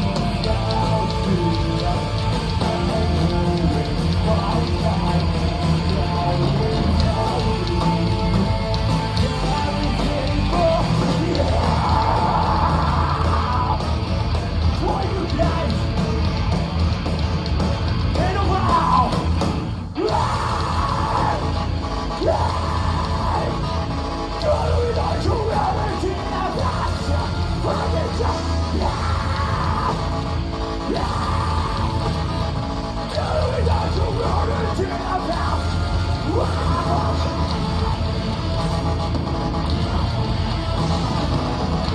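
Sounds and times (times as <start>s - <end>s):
heavy metal band playing live: 0.0s - 41.9s.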